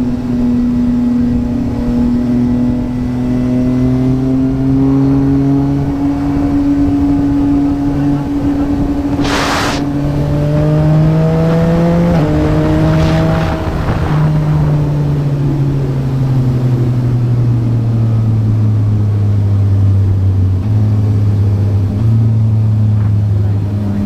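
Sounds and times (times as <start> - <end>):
motorcycle engine shifting gears: 0.3 - 24.0.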